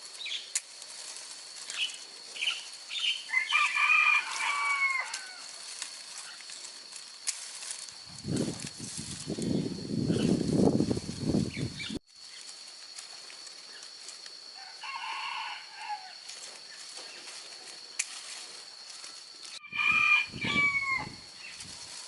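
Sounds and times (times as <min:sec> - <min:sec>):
rooster crowing: 0:03.3 - 0:05.6, 0:14.6 - 0:16.2, 0:19.6 - 0:21.3.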